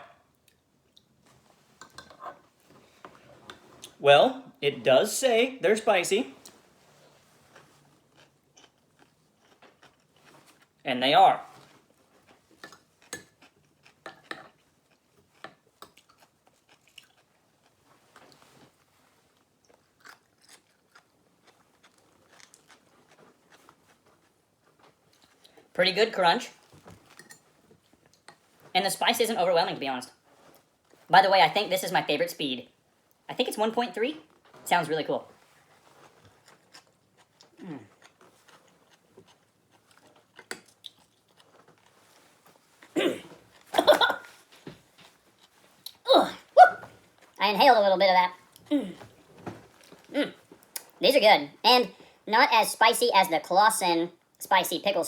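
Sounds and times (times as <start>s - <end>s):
person crunching and chewing chips: 7.4s - 25.7s, 35.4s - 47.6s
person crunching chips: 19.4s - 24.0s.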